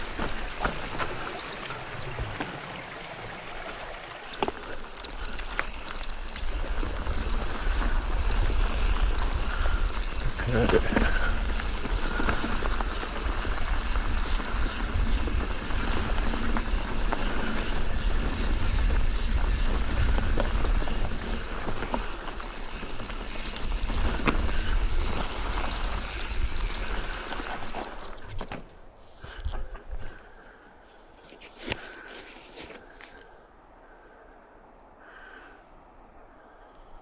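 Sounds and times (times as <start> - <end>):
bike clicks and rattles: 0.0 - 29.6, 31.2 - 33.4
wind buffeting microphone: 5.2 - 27.7.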